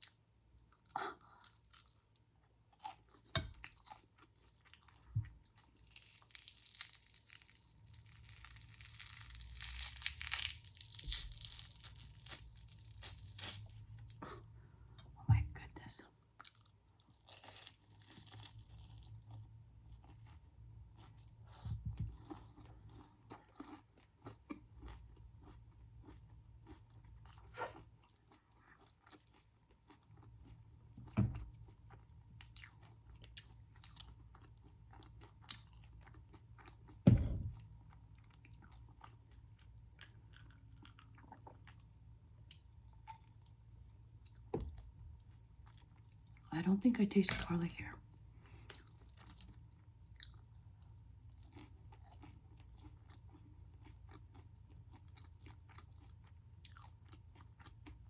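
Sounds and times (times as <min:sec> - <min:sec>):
crunching and chewing food: 0:00.0 - 0:15.2, 0:15.8 - 0:58.0.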